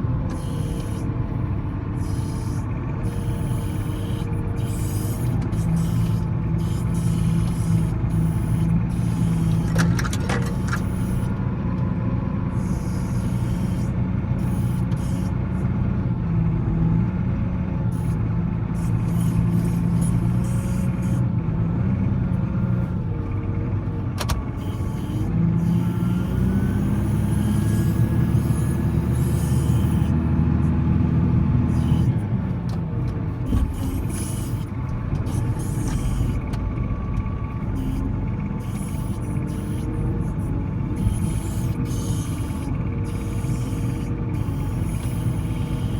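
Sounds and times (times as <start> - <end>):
wheel loader diesel engine running: 0.0 - 45.9.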